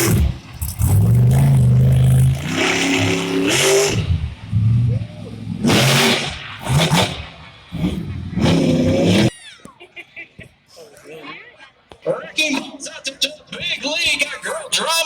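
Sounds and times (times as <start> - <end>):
truck engines revving hard: 0.0 - 9.3.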